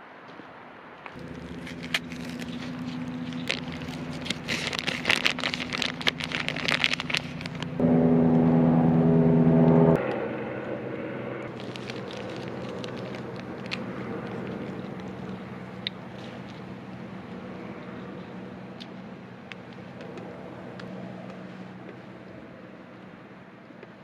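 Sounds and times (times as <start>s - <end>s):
clicking and crackling: 1.0s - 7.8s, 11.5s - 22.0s
motorcycle engine running: 1.2s - 22.5s.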